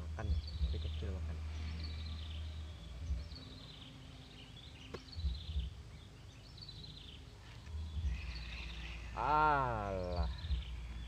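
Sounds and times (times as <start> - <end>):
bird song falling phrase: 0.1 - 11.0
low rumble: 7.7 - 9.3.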